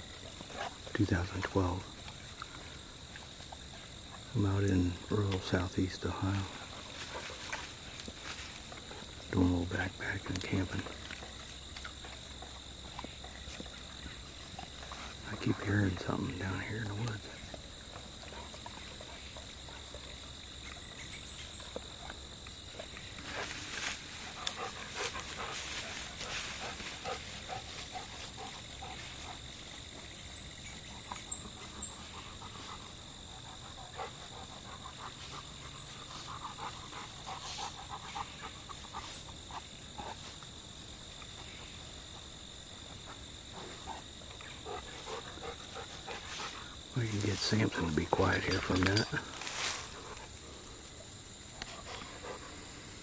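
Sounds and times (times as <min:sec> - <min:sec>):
crickets droning: 0:00.0 - 0:53.0
dog panting and snuffling: 0:06.5 - 0:09.2, 0:21.5 - 0:30.3, 0:31.0 - 0:40.5, 0:42.9 - 0:46.9, 0:48.2 - 0:53.0.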